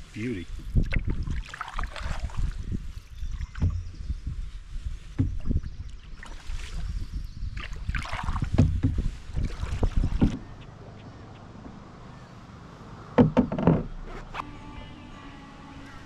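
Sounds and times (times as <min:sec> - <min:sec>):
paddle splashing water: 0:00.5 - 0:04.0, 0:04.9 - 0:10.4
paddle knocking canoe hull: 0:03.5 - 0:04.0, 0:05.1 - 0:05.7, 0:07.6 - 0:10.4, 0:13.2 - 0:14.0.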